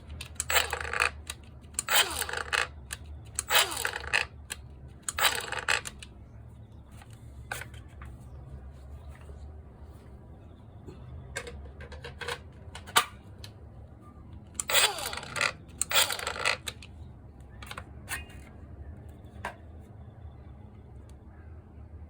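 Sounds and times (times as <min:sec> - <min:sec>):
small hard parts clicking: 0:00.0 - 0:06.1, 0:14.6 - 0:16.9.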